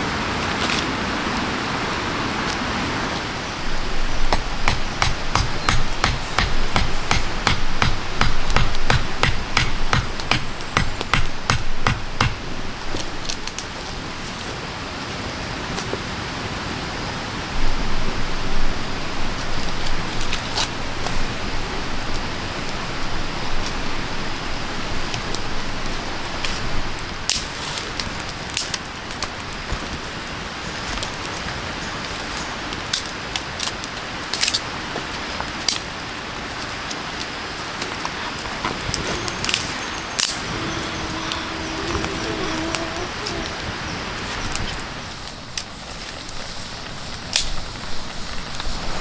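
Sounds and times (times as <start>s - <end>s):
steady rain-like hiss: 0.0s - 49.0s
rapid sharp knocks: 4.3s - 12.6s.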